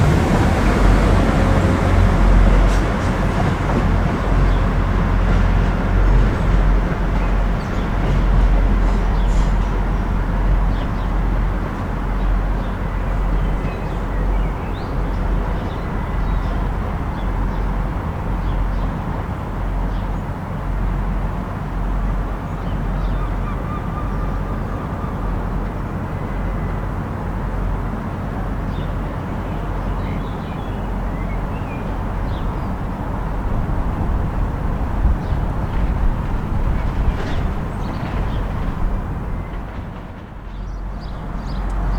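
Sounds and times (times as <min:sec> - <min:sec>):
diesel train engine rumbling: 0:00.0 - 0:41.9
birds chirping: 0:39.3 - 0:41.9.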